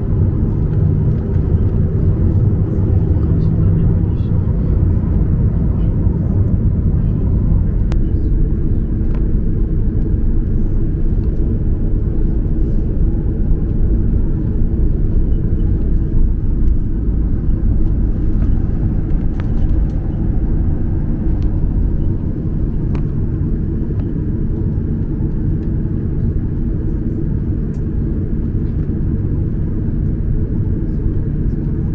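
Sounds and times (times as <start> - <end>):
airliner cabin rumble: 0.0 - 31.9.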